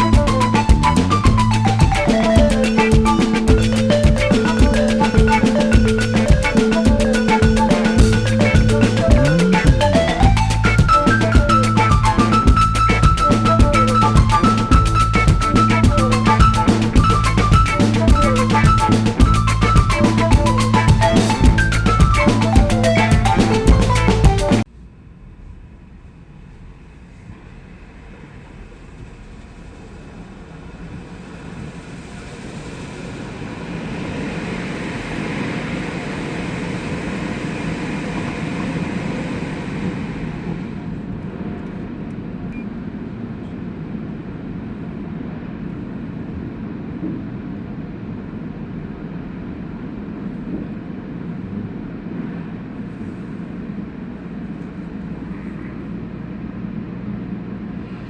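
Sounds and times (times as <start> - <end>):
automatic car wash rushing: 26.5 - 44.1.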